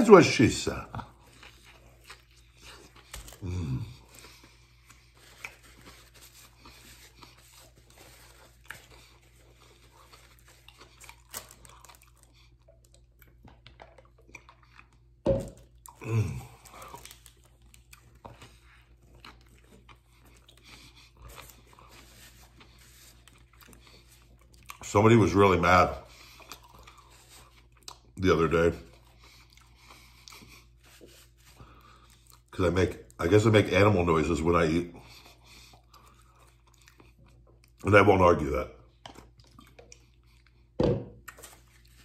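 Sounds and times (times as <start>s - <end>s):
person chewing with wet clicks: 1.0s - 25.0s, 26.1s - 28.2s, 28.8s - 33.2s, 35.1s - 37.8s, 38.8s - 42.0s.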